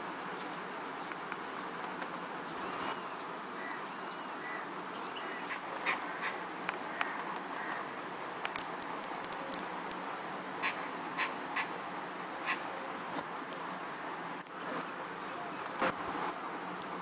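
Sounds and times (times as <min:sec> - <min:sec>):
steady background hiss: 0:00.0 - 0:17.0
sharp clicks: 0:01.0 - 0:02.1, 0:05.7 - 0:07.8, 0:08.4 - 0:10.0.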